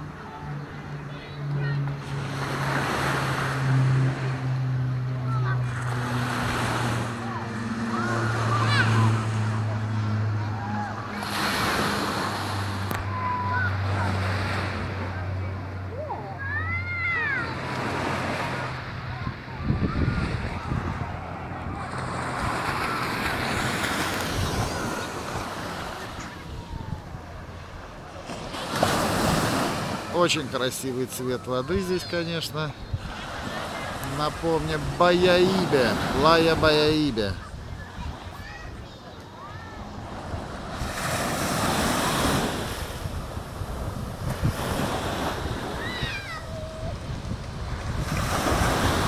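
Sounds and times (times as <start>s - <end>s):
small waves washing onto beach: 0.0s - 49.0s
wind on microphone: 19.1s - 27.5s, 42.1s - 49.0s.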